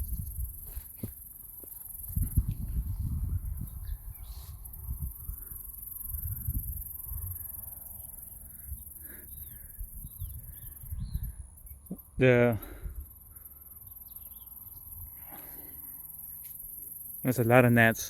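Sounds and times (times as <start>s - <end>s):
footsteps on outdoor path: 0.0s - 4.6s
faint bird chirps: 3.4s - 17.6s.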